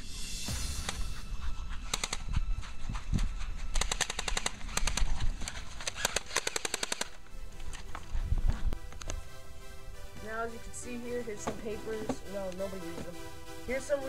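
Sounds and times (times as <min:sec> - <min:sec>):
automatic gunfire bursts: 0:03.8 - 0:07.2.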